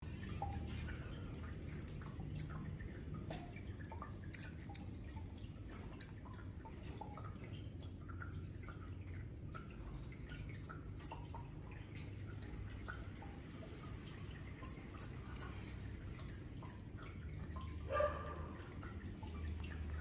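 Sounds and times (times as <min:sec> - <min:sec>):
low steady hum: 0:00.0 - 0:20.0
finches chirping: 0:00.4 - 0:00.8, 0:01.8 - 0:02.6, 0:03.3 - 0:03.6, 0:04.3 - 0:06.4, 0:13.7 - 0:16.8, 0:19.5 - 0:20.0.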